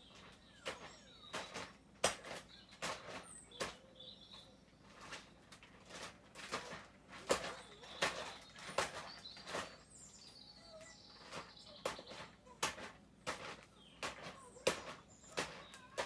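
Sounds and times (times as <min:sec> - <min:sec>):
birds chirping: 0:00.0 - 0:16.0
clicks and rustles: 0:00.0 - 0:16.0.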